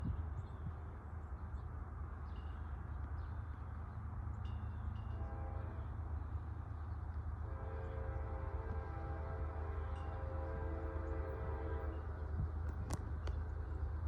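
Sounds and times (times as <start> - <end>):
diesel locomotive rumbling: 0.0 - 14.0
train air horn: 5.2 - 6.0, 7.4 - 12.2.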